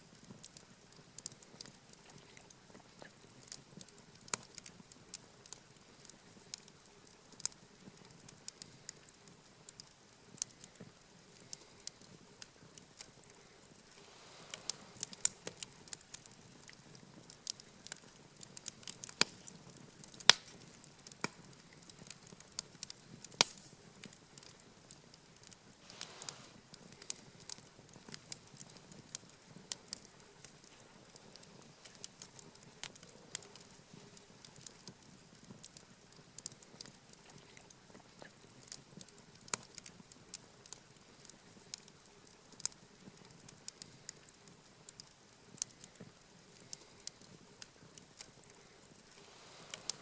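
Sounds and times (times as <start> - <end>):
campfire crackling and popping: 0.0 - 50.0
rush of flame: 13.8 - 16.3, 25.8 - 27.5, 49.0 - 50.0.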